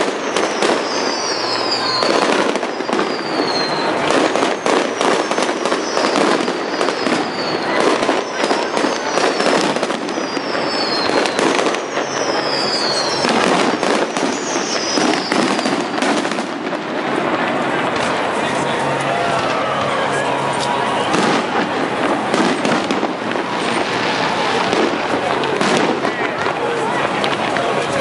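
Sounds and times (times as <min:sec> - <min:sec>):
high falling whistle: 0:10.1 - 0:13.4.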